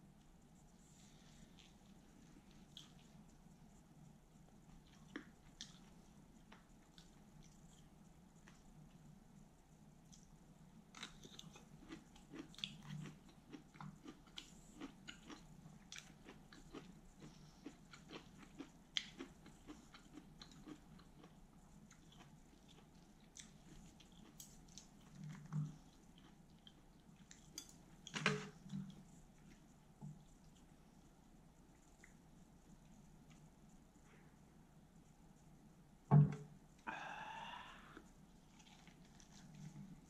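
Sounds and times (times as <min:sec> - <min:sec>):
crisp chewing crunches: 0:10.9 - 0:29.7, 0:38.4 - 0:40.0.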